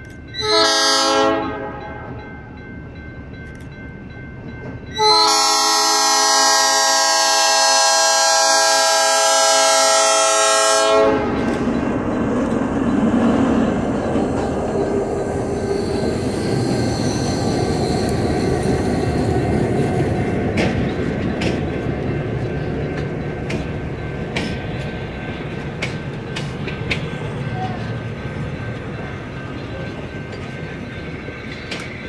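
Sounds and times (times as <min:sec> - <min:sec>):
locomotive running past: 0:00.0 - 0:32.0
locomotive horn: 0:00.4 - 0:02.2, 0:05.0 - 0:11.4
train wheels clicking on rails: 0:10.4 - 0:32.0.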